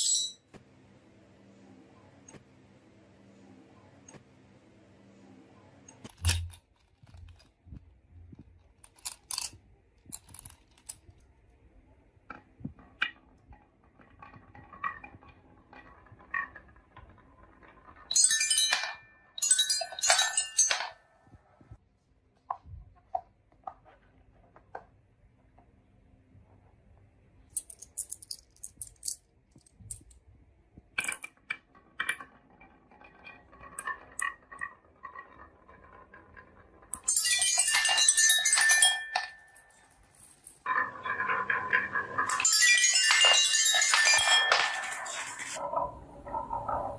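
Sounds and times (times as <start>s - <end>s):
clinking clatter of marbles: 0.0s - 0.4s, 5.9s - 11.2s, 13.9s - 21.4s, 27.5s - 30.2s, 31.0s - 45.7s
marbles rolling on wooden run: 12.3s - 21.0s, 31.0s - 46.9s.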